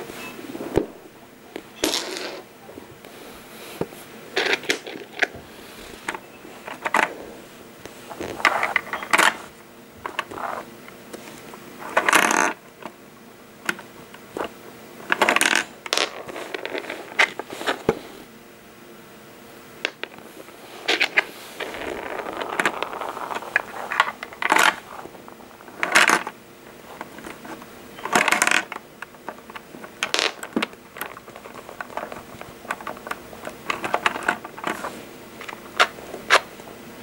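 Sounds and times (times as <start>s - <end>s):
plastic bricks clicking and rattling: 4.4s - 5.4s, 6.0s - 7.2s, 8.3s - 9.4s, 11.8s - 13.0s, 13.6s - 17.4s, 20.9s - 36.5s.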